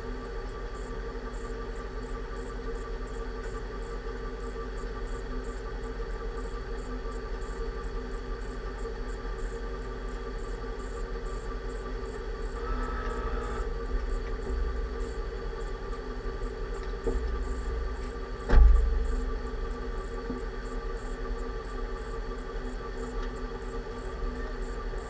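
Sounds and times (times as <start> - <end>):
drivetrain whine: 0.0 - 25.0
low rumble: 17.2 - 20.0.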